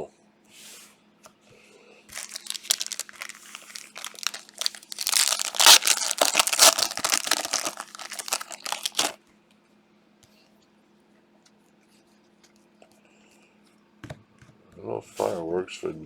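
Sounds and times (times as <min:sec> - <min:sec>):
foil wrapper tearing and crinkling: 0:02.1 - 0:09.2.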